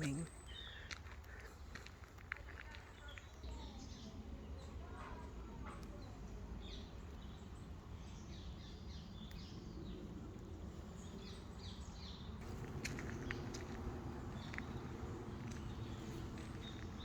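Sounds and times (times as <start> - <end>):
songbirds singing and chirping: 0.0 - 17.0
low background rumble: 12.4 - 17.0.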